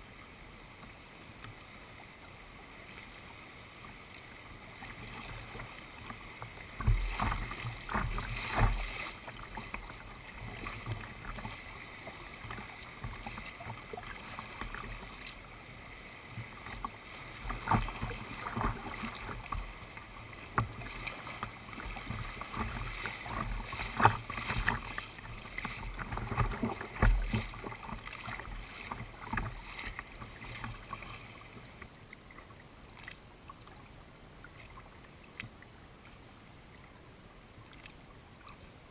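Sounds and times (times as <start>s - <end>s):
paddle splashing in water: 2.8s - 33.8s.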